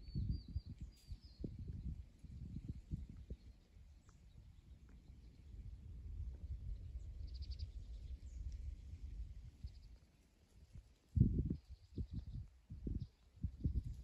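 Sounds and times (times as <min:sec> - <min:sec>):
small bird chirping: 0:00.0 - 0:05.5, 0:06.6 - 0:08.7.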